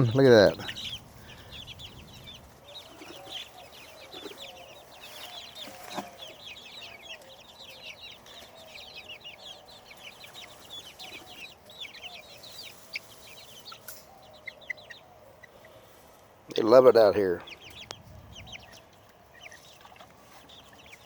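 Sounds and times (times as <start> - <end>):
low clucking calls: 0.0 - 1.8
chicks peeping: 0.0 - 21.0.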